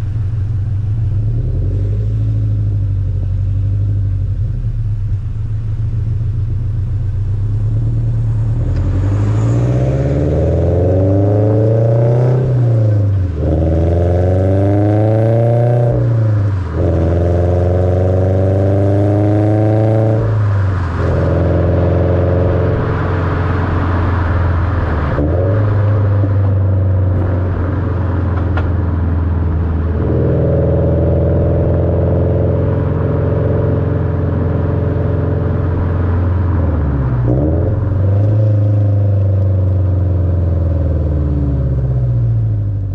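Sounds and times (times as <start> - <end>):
car engine accelerating hard: 0.0 - 42.9.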